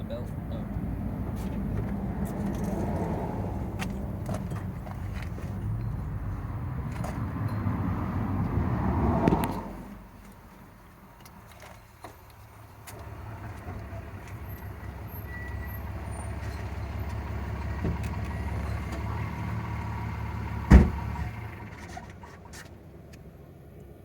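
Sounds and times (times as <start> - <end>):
passing vehicle rumble: 0.0 - 11.5, 12.2 - 24.0
sharp thump: 20.7 - 21.1.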